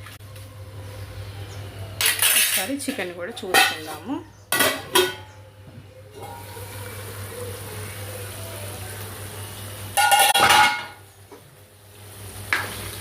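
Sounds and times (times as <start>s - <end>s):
metal cookware clattering: 2.0s - 5.3s, 10.0s - 11.0s.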